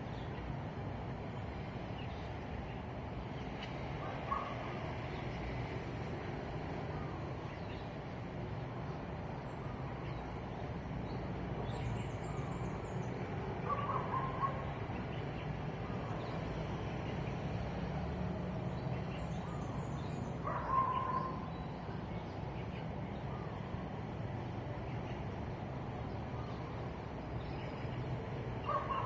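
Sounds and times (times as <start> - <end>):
birds calling: 12.1 - 15.5, 18.8 - 23.6, 26.0 - 29.0.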